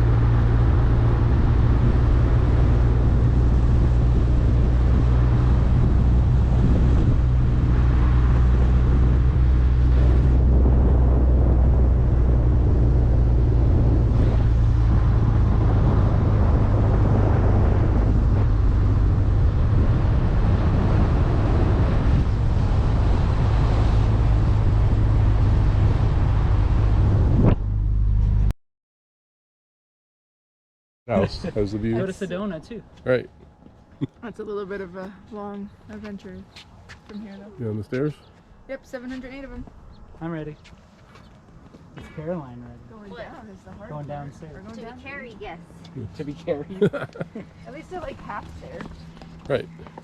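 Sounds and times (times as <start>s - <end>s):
low droning hum: 0.0s - 28.5s, 41.9s - 50.0s.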